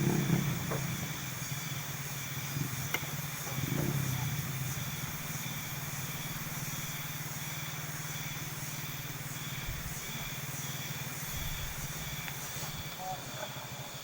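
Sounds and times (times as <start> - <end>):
motorcycle engine running: 0.0 - 14.0
wind and road noise: 11.2 - 12.9.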